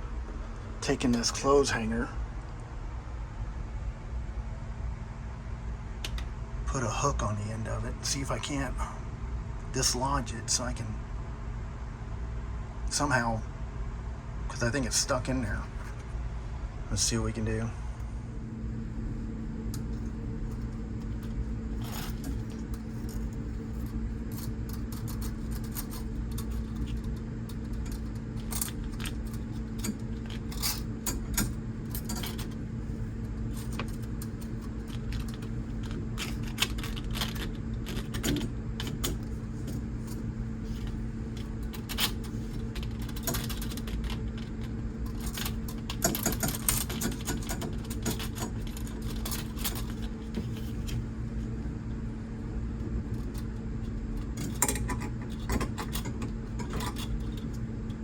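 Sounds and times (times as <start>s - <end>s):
low hum: 0.0s - 58.0s
wire scraping and clicking on metal: 19.7s - 52.0s, 52.8s - 58.0s.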